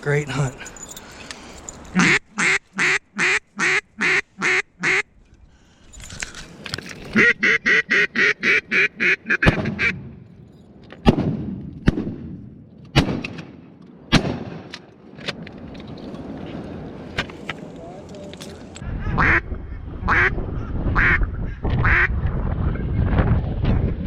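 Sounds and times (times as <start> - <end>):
duck quacking: 2.0 - 5.0, 7.2 - 10.0, 19.0 - 20.4, 21.0 - 22.1
shotgun shots echoing: 11.0 - 14.7.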